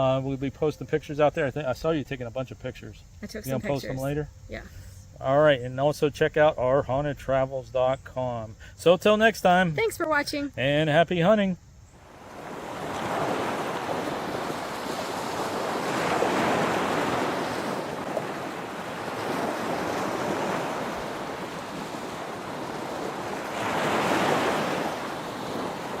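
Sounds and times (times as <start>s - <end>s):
wind blowing in gusts: 12.0s - 26.0s.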